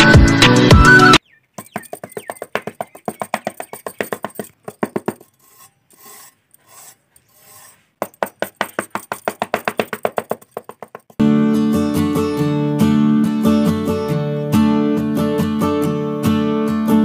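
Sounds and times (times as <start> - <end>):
plastic scraper scraping sand: 4.3 - 8.2.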